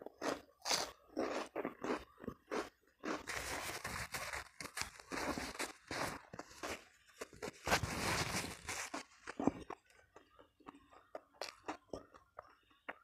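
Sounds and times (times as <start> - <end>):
chewing with crunches: 0.0 - 13.0
crunching bite into crisp food: 0.1 - 9.8.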